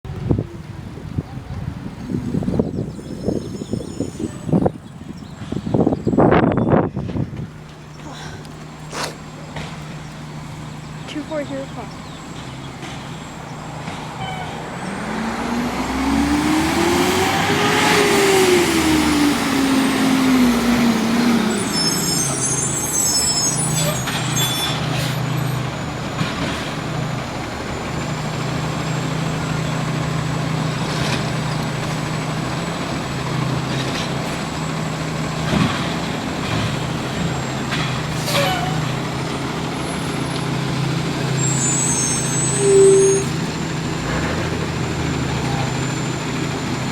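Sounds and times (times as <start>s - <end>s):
garbage truck engine revving: 1.8s - 46.9s.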